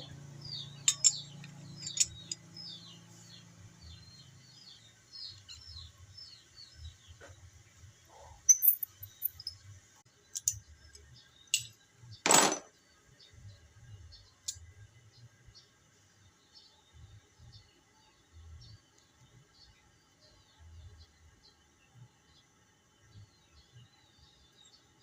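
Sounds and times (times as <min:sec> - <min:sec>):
small birds chirping: 0:00.0 - 0:12.2, 0:12.8 - 0:25.0
metallic clicks of hand tools: 0:00.8 - 0:02.4, 0:10.3 - 0:12.6.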